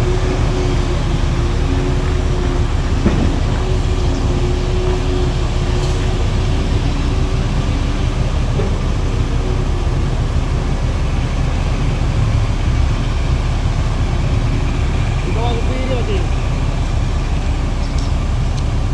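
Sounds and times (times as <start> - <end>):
truck engines rumbling: 0.0 - 18.9.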